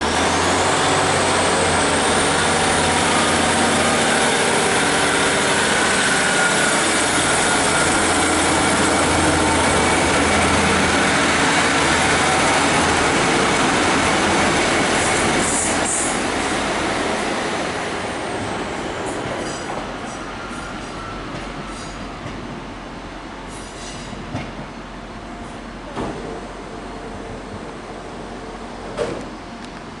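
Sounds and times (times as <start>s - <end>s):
passenger train engine and rail noise: 0.0s - 30.0s
high-pitched squeals: 0.6s - 16.3s.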